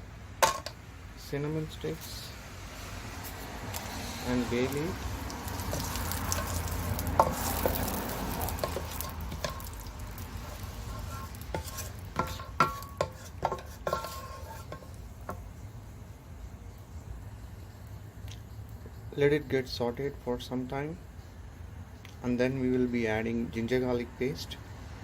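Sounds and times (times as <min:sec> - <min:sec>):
spices sizzling in hot oil: 0:02.0 - 0:16.0
utensil knocking and scraping pan: 0:05.6 - 0:15.4.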